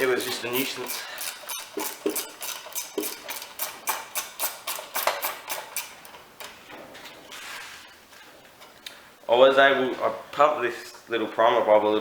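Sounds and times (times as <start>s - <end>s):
ratchet wrench clicking: 0.0s - 6.2s.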